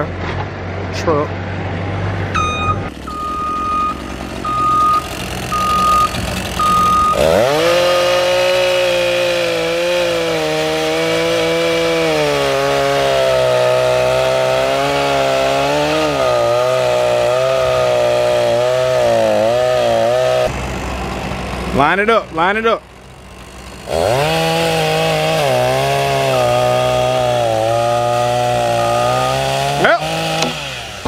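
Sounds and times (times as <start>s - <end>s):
heavy machine engine revving: 0.0s - 31.0s
reversing alarm beeping: 2.4s - 8.2s.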